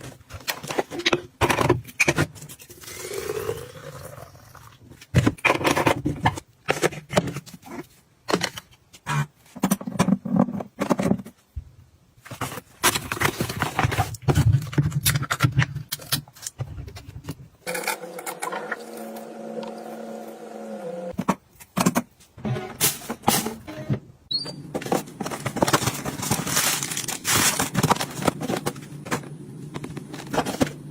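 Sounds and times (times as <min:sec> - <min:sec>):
household items clicking and knocking: 0:12.3 - 0:17.7, 0:24.7 - 0:30.9.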